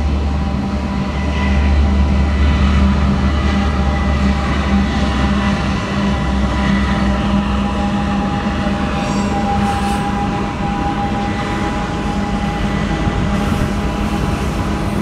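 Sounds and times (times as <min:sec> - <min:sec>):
diesel locomotive rumble: 0:00.0 - 0:15.0
train cars rumbling on rails: 0:00.0 - 0:15.0
high-pitched wheel squeal: 0:07.5 - 0:14.4.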